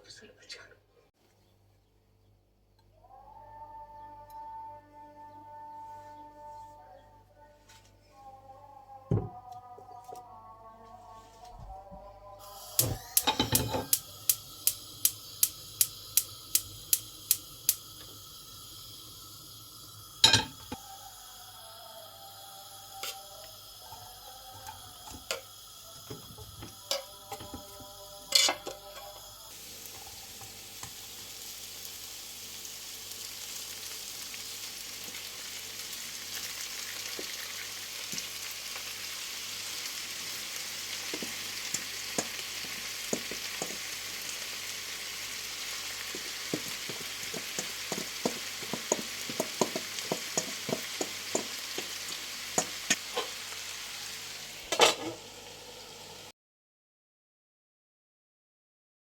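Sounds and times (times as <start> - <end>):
food sizzling in oil: 12.4 - 56.3.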